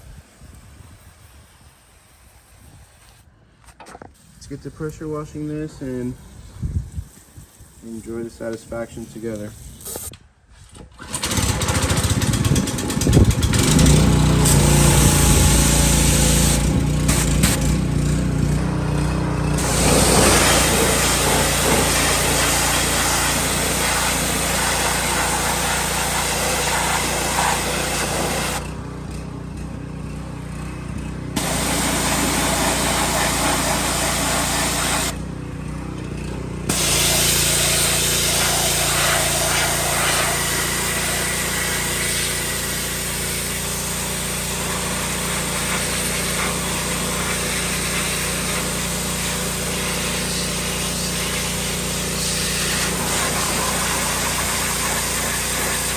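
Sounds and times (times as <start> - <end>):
high-pressure spray hissing: 9.1 - 10.1, 14.4 - 17.6, 19.6 - 28.6, 31.4 - 35.2, 36.7 - 55.9
pressure washer motor humming: 11.0 - 55.9.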